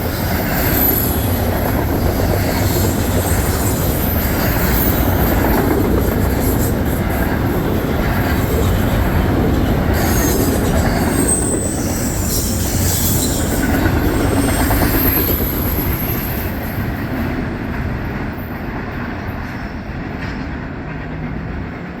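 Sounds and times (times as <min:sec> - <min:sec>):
train rolling past: 0:00.0 - 0:22.0
wheels squealing: 0:08.2 - 0:16.7.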